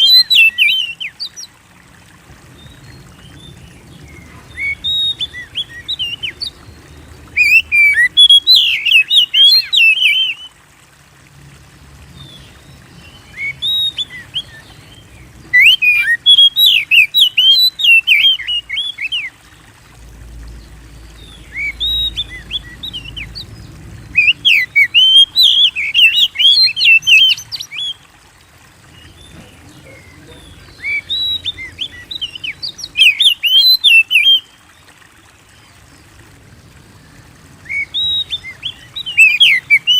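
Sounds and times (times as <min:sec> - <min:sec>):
bird whistling song: 0:00.0 - 0:01.4, 0:04.3 - 0:06.6, 0:07.3 - 0:10.5, 0:13.2 - 0:14.8, 0:15.4 - 0:19.3, 0:21.3 - 0:23.5, 0:24.1 - 0:28.0, 0:29.4 - 0:34.5, 0:37.6 - 0:39.9.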